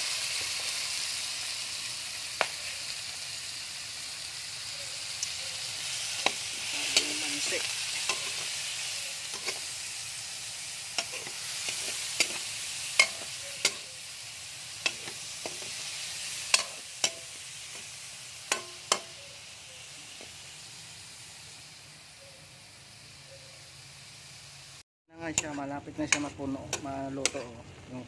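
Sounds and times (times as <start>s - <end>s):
food sizzling in oil: 0.0s - 28.0s
metal spatula clanking on wok: 8.0s - 8.4s, 9.3s - 9.6s, 11.0s - 13.9s, 16.5s - 17.9s, 18.5s - 19.2s, 25.3s - 27.6s.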